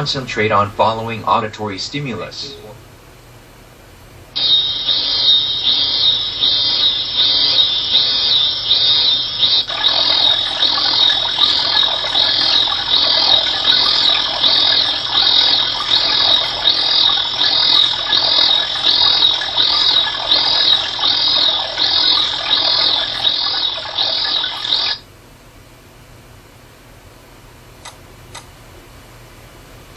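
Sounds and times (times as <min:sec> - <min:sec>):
high pulsing tone: 0:04.4 - 0:25.0.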